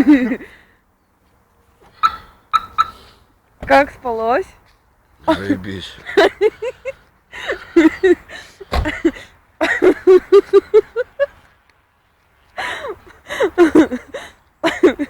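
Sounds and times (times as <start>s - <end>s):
people laughing: 0.0s - 0.5s, 5.3s - 11.4s, 12.6s - 15.0s
single bump: 8.7s - 9.1s.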